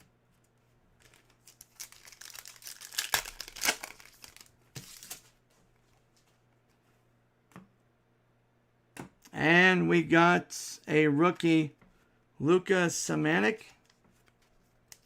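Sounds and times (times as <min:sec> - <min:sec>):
wrapper crinkling and tearing: 0:01.0 - 0:05.2.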